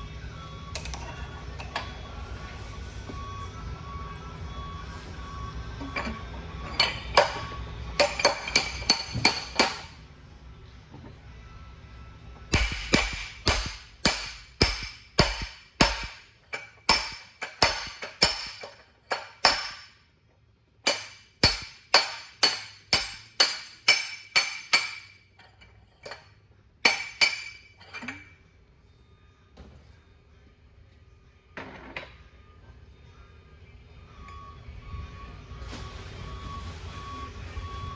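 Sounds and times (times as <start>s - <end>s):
hammer striking steel: 5.9s - 10.0s, 12.5s - 20.0s, 20.8s - 26.2s, 26.8s - 28.2s.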